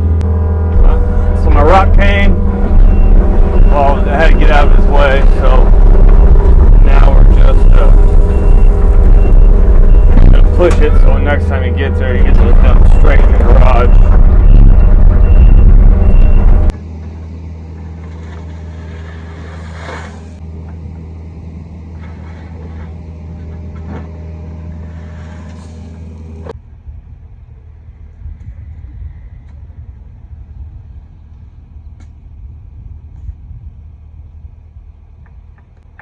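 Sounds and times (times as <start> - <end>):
excavator diesel engine running: 0.0 - 26.6.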